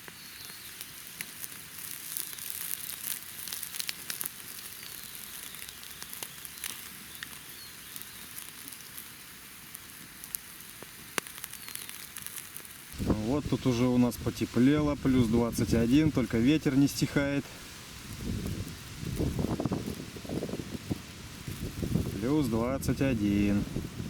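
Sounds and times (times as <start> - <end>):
campfire crackling: 0.0 - 24.0
meat sizzling on skewers: 0.0 - 24.0
sharp pops: 9.7 - 13.2.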